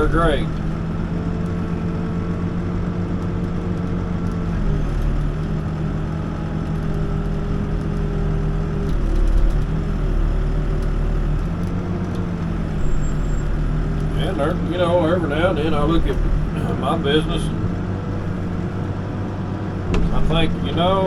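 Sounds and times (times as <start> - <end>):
backhoe diesel engine running: 0.0 - 21.0.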